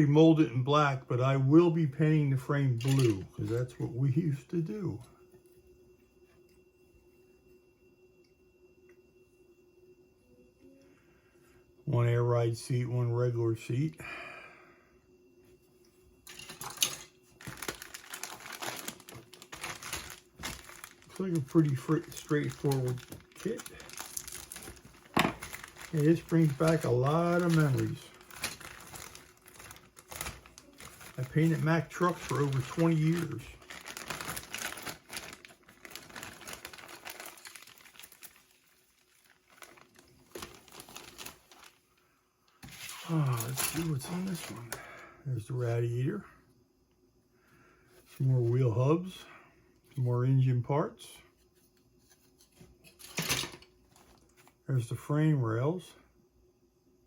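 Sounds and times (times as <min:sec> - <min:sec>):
plastic parts clicking and rattling: 0:02.8 - 0:03.3, 0:16.3 - 0:38.5
plastic bags crinkling: 0:02.8 - 0:03.6, 0:16.3 - 0:41.9, 0:42.6 - 0:44.8.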